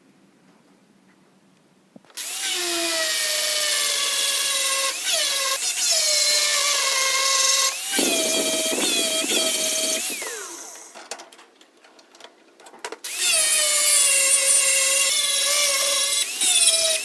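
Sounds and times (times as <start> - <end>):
power tool high whine: 2.2 - 11.0, 13.1 - 17.0.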